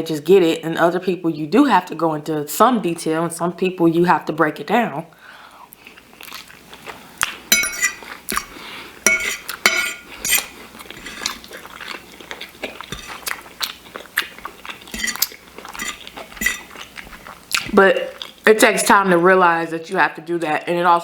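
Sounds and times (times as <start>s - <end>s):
chewing: 5.7s - 8.6s, 10.2s - 18.4s
fork scraping a dish: 7.5s - 8.5s, 9.1s - 12.0s, 12.7s - 13.4s, 14.9s - 17.3s.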